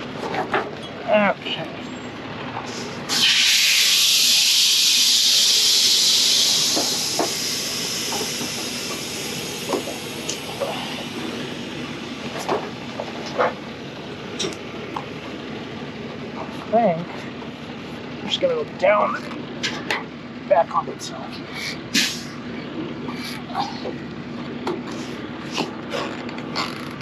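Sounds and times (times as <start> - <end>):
compressed air hiss: 2.7 - 11.7, 21.6 - 22.4.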